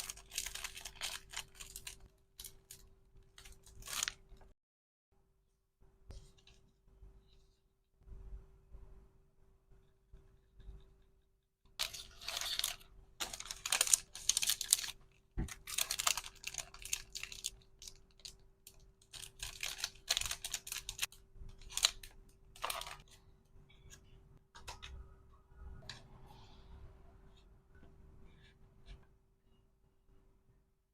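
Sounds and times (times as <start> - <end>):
packaging crinkling and rustling: 0.0 - 4.4, 11.8 - 18.4, 19.0 - 23.1.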